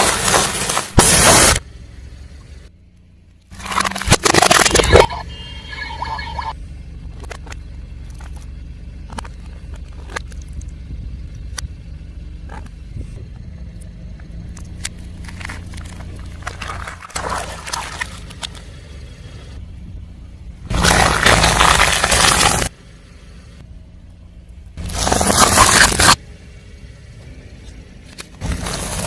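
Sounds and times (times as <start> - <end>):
car engine running: 0.0 - 29.0
tyre crunching over objects: 20.7 - 22.7
sharp cracks: 20.7 - 22.8.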